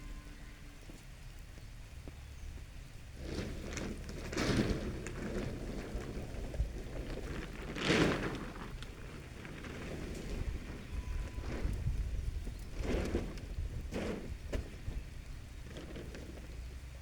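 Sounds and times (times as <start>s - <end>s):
low steady rumble: 0.0s - 17.0s
rain falling: 3.0s - 11.7s.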